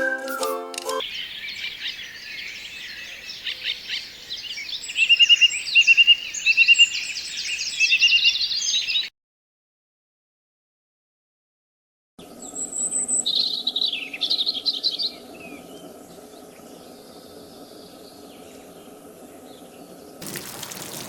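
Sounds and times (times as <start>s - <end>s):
small bird chirping and trilling: 1.0s - 9.1s
outdoor background noise: 12.2s - 21.0s.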